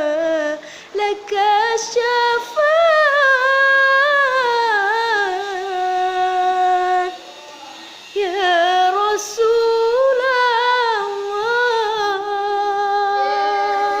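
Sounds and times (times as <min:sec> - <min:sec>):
woman singing unaccompanied: 0:00.0 - 0:07.2, 0:08.2 - 0:14.0
quick breath: 0:00.6 - 0:01.0.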